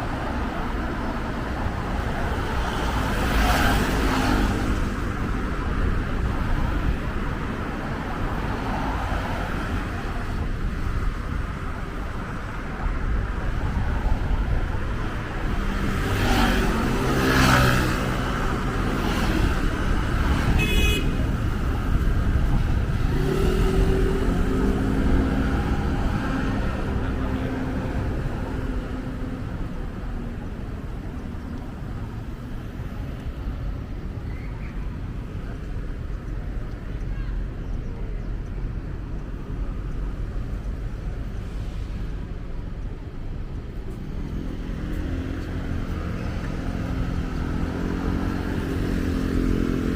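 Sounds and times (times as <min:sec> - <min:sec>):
road rumble: 0:00.0 - 0:49.9
vehicles passing: 0:00.0 - 0:49.9
car horn toot: 0:20.6 - 0:21.2.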